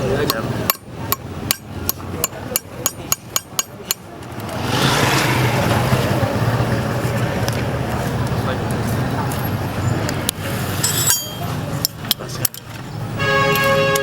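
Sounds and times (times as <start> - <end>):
street and traffic noise: 0.0 - 14.0
hammer tapping: 0.2 - 4.5.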